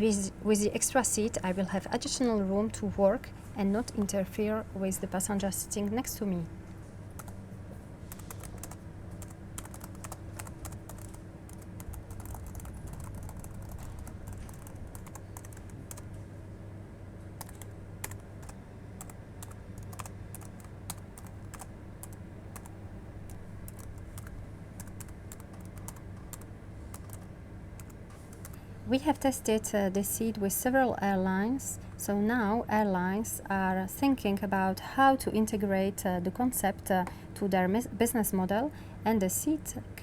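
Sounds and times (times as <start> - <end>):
steady low hum: 0.0 - 40.0
keyboard typing clicks: 8.1 - 16.0, 17.4 - 22.7, 23.7 - 28.6.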